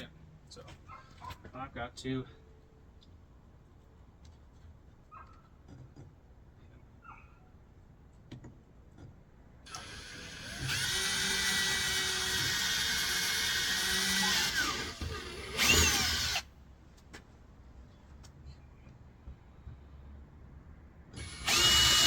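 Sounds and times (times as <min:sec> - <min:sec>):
electric drill whining: 0:09.7 - 0:16.5, 0:21.2 - 0:22.0.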